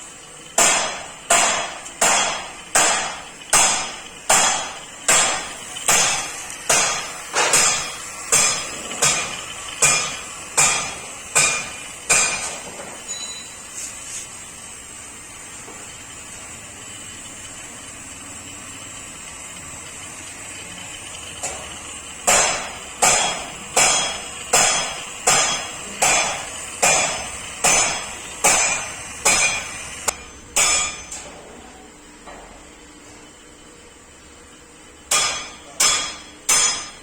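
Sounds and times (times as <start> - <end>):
hammer blows ringing: 0.6 - 13.6, 22.2 - 31.3, 35.1 - 37.0.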